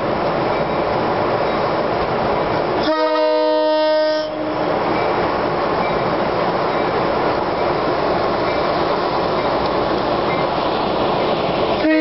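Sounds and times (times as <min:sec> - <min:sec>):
train rumbling: 0:00.0 - 0:12.0
locomotive horn: 0:02.8 - 0:04.8, 0:11.8 - 0:12.0.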